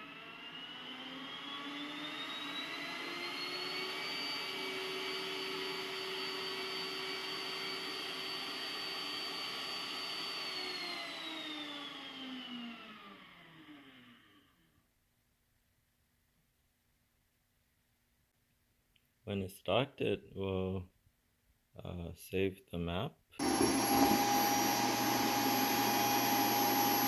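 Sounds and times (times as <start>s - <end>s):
suction motor whining: 23.4s - 27.0s.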